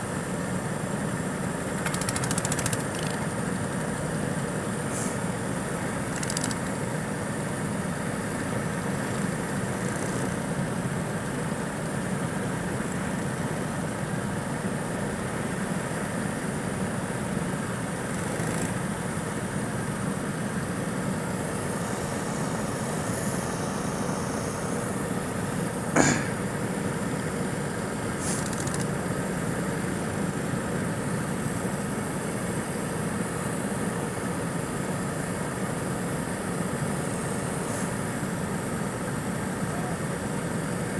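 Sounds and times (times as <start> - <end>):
go-kart engine running: 1.8 - 3.6.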